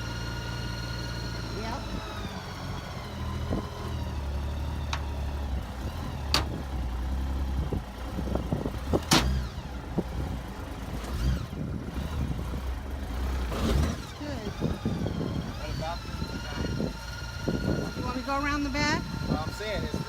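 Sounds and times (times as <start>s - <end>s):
vehicle engine running: 0.0s - 20.0s
sharp clunks: 6.3s - 6.6s, 9.0s - 9.4s.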